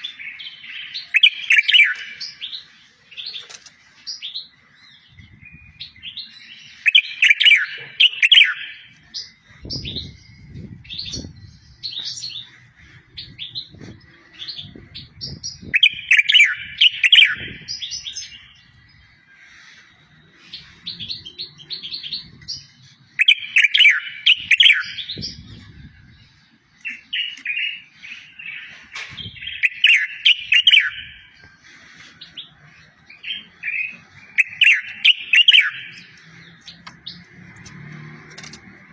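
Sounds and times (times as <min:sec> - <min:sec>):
bird chirps: 0:00.0 - 0:37.8
songbird trilling song: 0:00.0 - 0:38.9.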